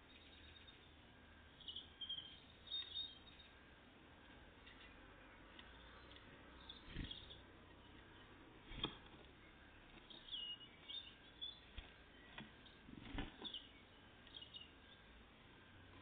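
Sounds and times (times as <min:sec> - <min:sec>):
tits chirping: 0:01.6 - 0:03.6, 0:05.7 - 0:08.4, 0:09.4 - 0:15.1.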